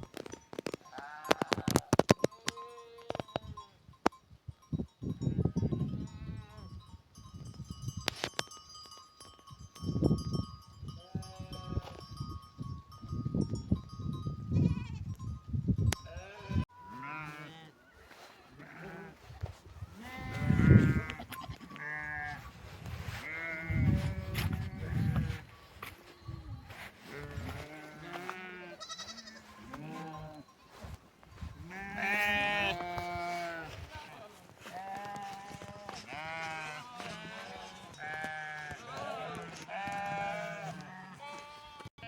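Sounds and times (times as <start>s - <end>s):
sheep bleating: 0.9s - 1.9s, 16.1s - 17.8s, 18.6s - 19.3s, 20.0s - 22.5s, 23.2s - 25.5s, 27.0s - 30.5s, 31.6s - 42.0s.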